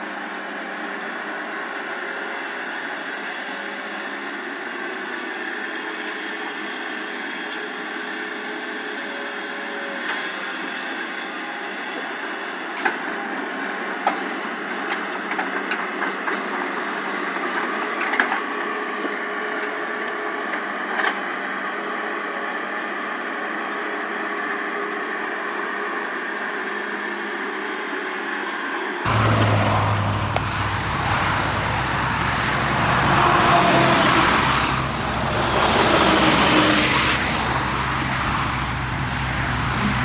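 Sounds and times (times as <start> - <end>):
machine hum and rumble: 29.1 - 40.0.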